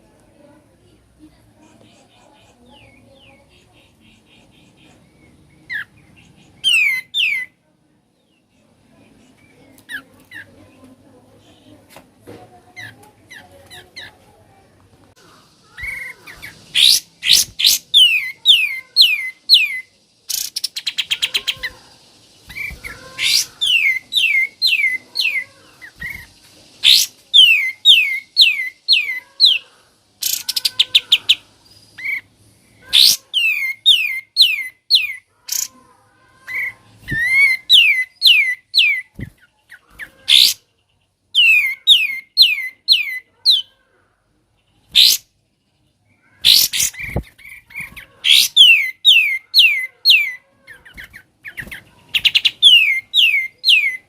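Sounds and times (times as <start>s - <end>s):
bird singing whistled notes: 15.9s - 21.6s, 26.0s - 29.6s, 52.2s - 54.0s
bird rattling trills: 20.3s - 27.6s.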